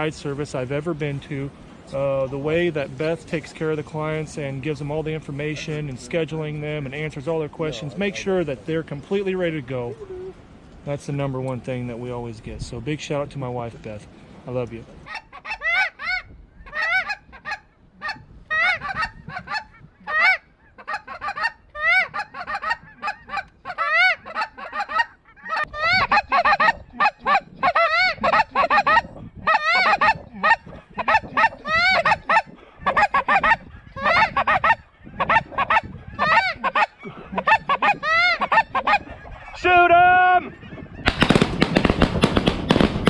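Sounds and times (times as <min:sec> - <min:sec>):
geese yelping: 0:07.6 - 0:08.7, 0:15.1 - 0:41.0.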